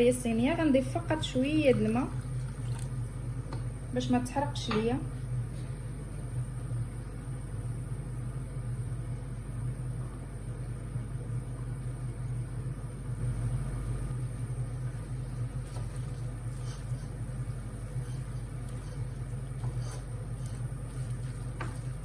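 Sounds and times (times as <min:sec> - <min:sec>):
low motor hum: 0:00.0 - 0:22.0.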